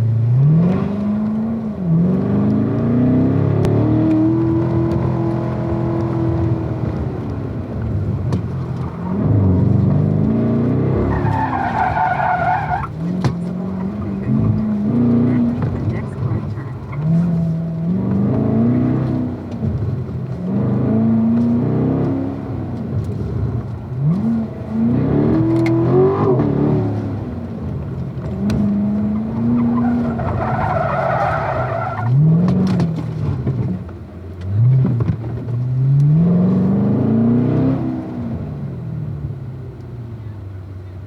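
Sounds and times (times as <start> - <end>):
car engine accelerating hard: 0.0 - 41.0
tires squealing: 4.0 - 19.4, 24.0 - 33.8.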